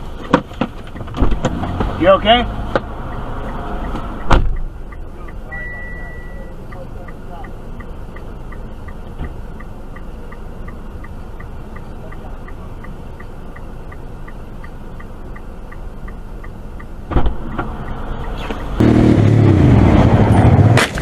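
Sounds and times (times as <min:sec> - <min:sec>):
car road noise: 0:00.0 - 0:21.0
sudden loud knock: 0:04.3 - 0:04.6.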